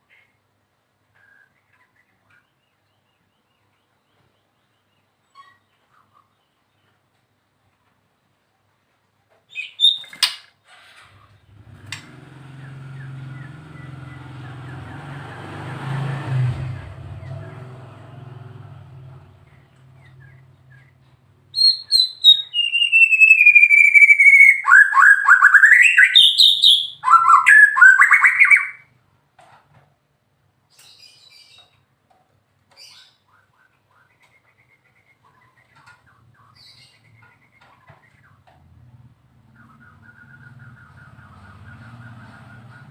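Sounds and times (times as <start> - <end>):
songbird whistling and trilling: 9.5 - 10.4, 20.0 - 28.9, 39.5 - 42.9.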